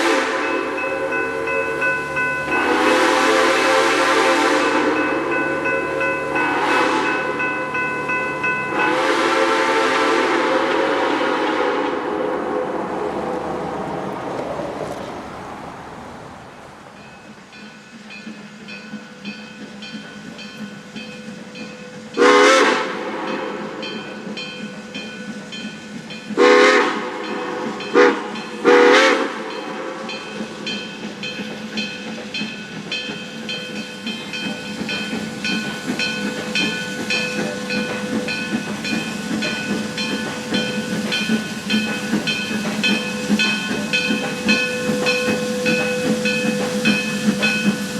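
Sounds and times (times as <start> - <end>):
steam locomotive whistle blasts: 0.0 - 7.8, 8.4 - 13.1, 22.0 - 24.1, 26.4 - 30.4, 36.2 - 47.9
steam hissing: 0.0 - 47.9.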